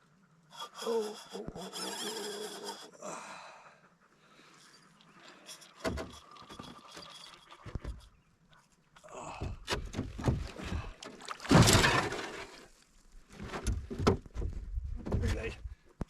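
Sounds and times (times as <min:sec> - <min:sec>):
knocks and thumps against boat: 0:05.8 - 0:06.2, 0:09.2 - 0:12.4, 0:13.3 - 0:15.7
fish thrashing and splashing: 0:10.1 - 0:12.7.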